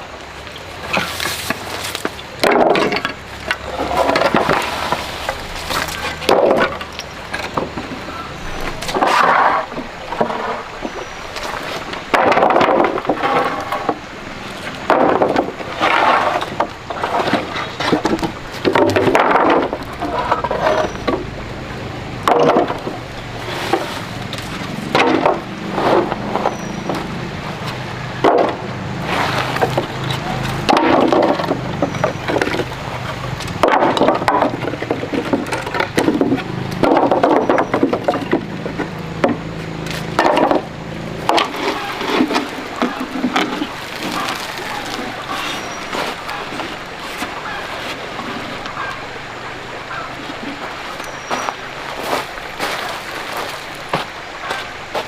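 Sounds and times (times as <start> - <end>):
wood and metal clattering: 0.8 - 55.0.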